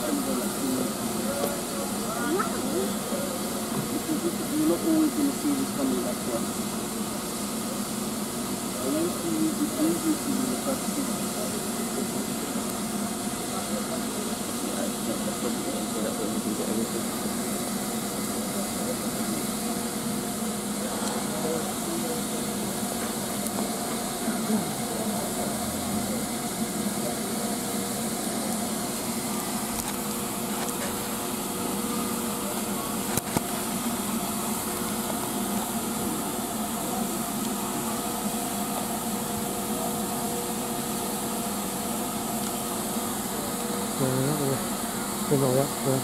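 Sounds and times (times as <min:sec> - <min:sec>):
diesel locomotive idling: 0:00.0 - 0:46.0
steam locomotive hissing: 0:00.0 - 0:46.0.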